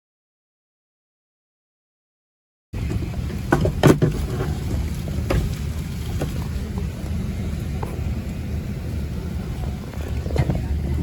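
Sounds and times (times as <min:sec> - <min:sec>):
airliner low rumble: 0:02.8 - 0:11.0.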